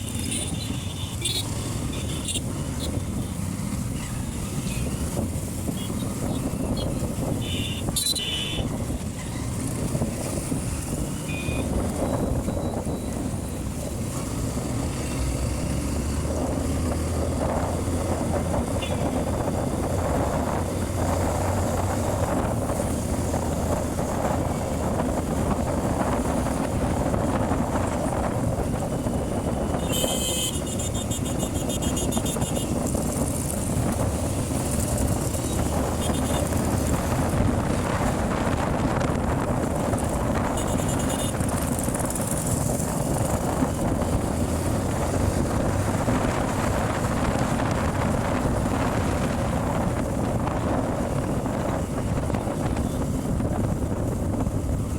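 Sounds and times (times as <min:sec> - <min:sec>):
wind rushing over microphone: 0:00.0 - 0:54.9
short high-pitched beeps: 0:11.3 - 0:13.2
motorcycle engine running: 0:17.2 - 0:54.9.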